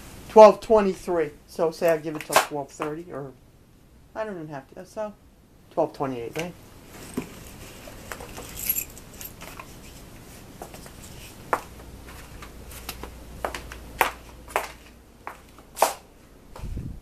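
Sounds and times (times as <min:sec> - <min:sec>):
high metallic jingle: 0:08.4 - 0:09.4.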